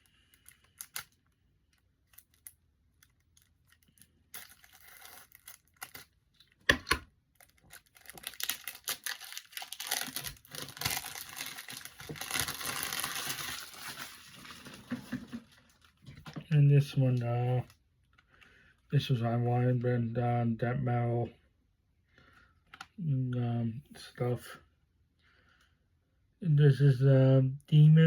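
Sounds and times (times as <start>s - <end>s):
plastic wrapping tearing and crinkling: 0.3s - 1.3s, 2.0s - 6.2s, 7.3s - 16.1s.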